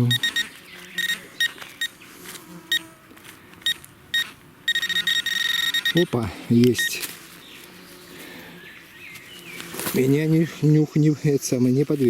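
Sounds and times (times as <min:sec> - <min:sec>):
metal detector beeping: 0:00.0 - 0:02.0, 0:03.6 - 0:07.1
metal detector continuous tone: 0:00.0 - 0:07.2.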